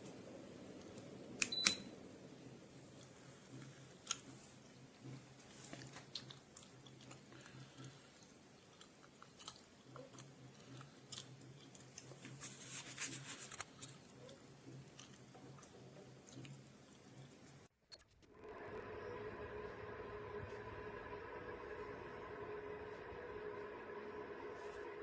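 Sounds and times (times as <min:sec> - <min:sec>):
faint clicks and crackles: 0:00.0 - 0:18.6
low hum: 0:18.2 - 0:25.0.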